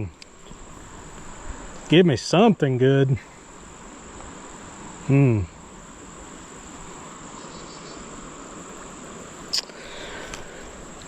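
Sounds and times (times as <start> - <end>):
insects droning: 0.0 - 11.0
person vocal sound: 5.1 - 5.5.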